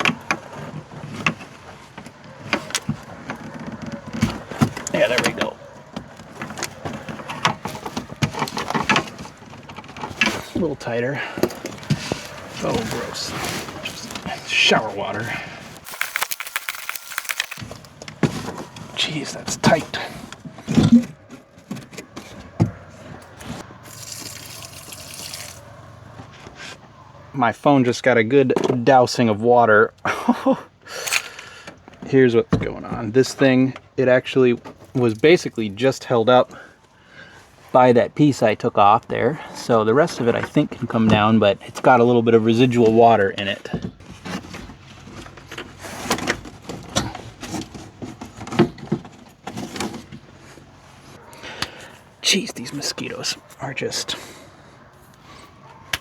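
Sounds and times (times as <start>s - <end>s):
knocks and creaks of plastic pipe: 0.0s - 5.4s
pipes scraping and rattling: 0.0s - 26.7s, 44.0s - 51.2s
water pouring and splashing: 15.8s - 17.6s, 23.8s - 25.7s.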